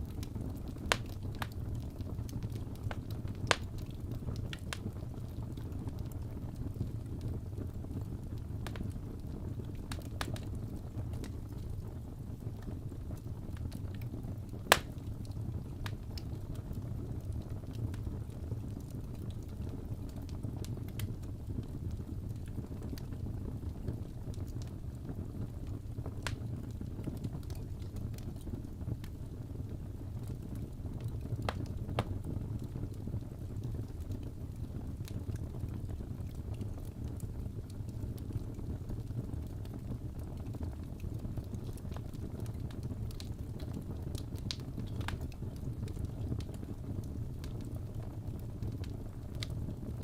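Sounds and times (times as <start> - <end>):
wood fire crackling: 0.0 - 50.0
sharp fire pops: 0.8 - 1.6, 2.4 - 3.8, 14.7 - 15.0.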